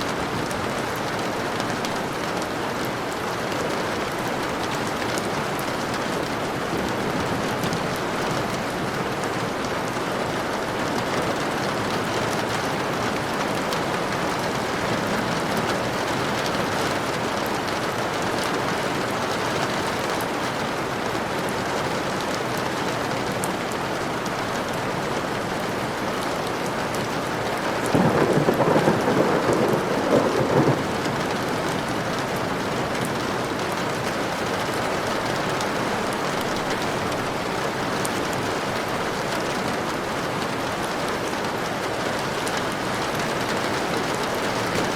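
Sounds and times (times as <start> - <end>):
steady rain falling: 0.0 - 44.9
crackling thunder clap: 27.7 - 33.5.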